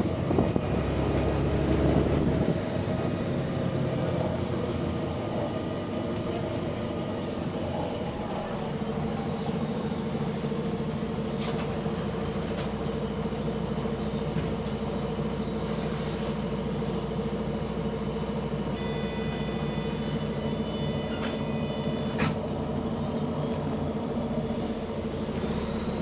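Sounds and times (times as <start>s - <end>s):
bus diesel engine running: 0.0s - 26.0s
hiss of air: 15.6s - 16.4s.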